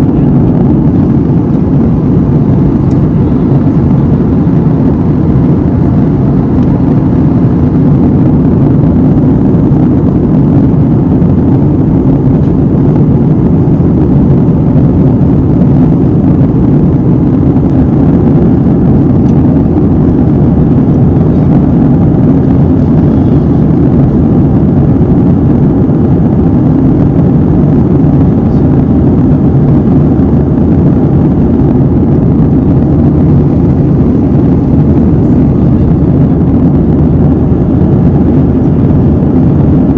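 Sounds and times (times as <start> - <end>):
airliner cabin engine hum: 0.0 - 39.9.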